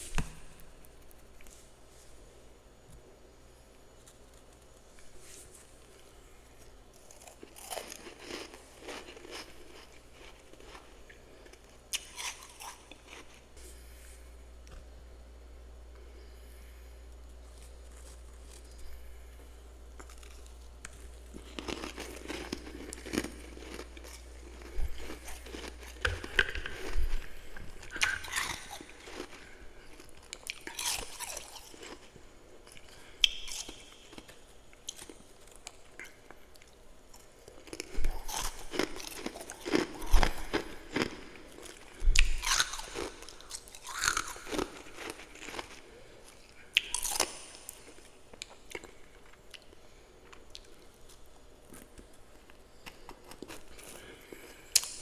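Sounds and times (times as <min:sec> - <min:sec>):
person crunching frost: 0:04.0 - 0:13.4, 0:17.4 - 0:19.2, 0:20.0 - 0:32.1, 0:37.6 - 0:45.9, 0:46.8 - 0:48.1.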